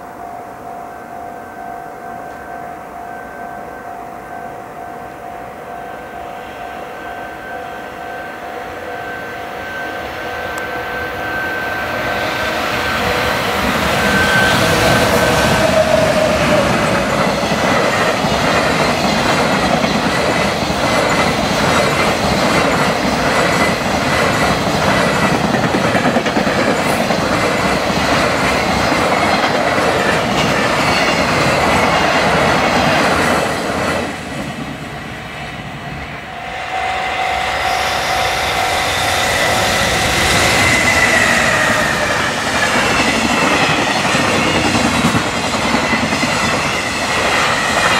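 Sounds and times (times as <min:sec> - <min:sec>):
level crossing alarm ringing: 0:00.0 - 0:26.7
freight train passing: 0:00.0 - 0:47.9.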